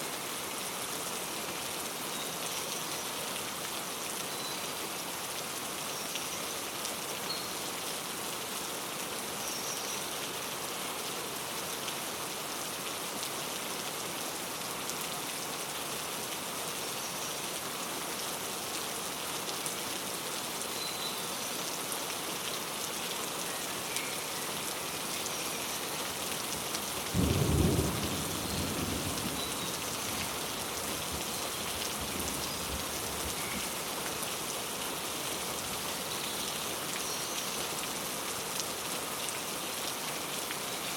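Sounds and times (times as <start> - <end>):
rain pattering: 21.7 - 40.9.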